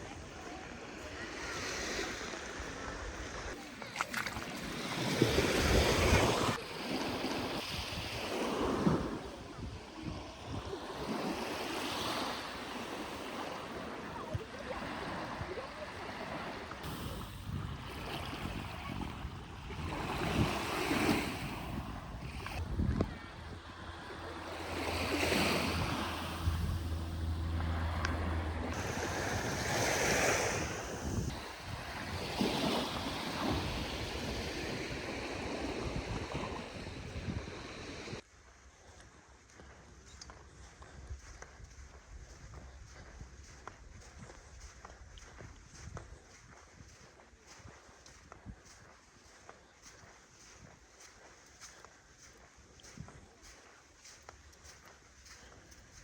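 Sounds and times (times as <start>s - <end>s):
small waves washing on beach: 0.0s - 38.2s, 40.6s - 56.0s
wind buffeting microphone: 16.7s - 38.2s, 40.5s - 49.0s
low steady hum: 22.6s - 29.8s.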